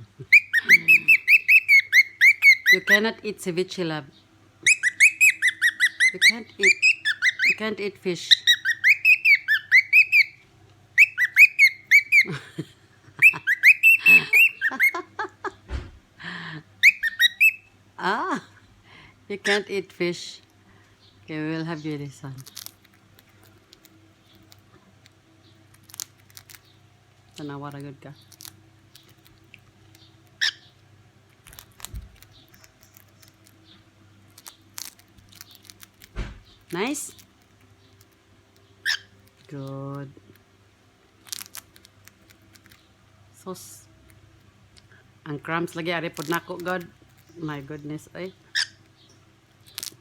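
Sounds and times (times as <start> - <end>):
steady low hum: 0.0 - 50.0
cockatiel chirping: 0.2 - 3.0, 4.6 - 7.6, 8.3 - 10.4, 11.0 - 12.4, 13.2 - 15.2, 16.8 - 17.7, 29.9 - 30.8, 38.8 - 39.2, 48.5 - 49.1
low thump: 15.7 - 16.0.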